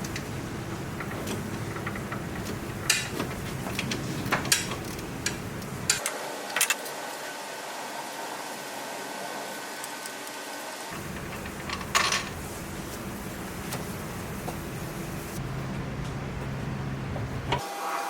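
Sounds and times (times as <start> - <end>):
steady low hum: 0.0 - 6.0, 10.9 - 17.6.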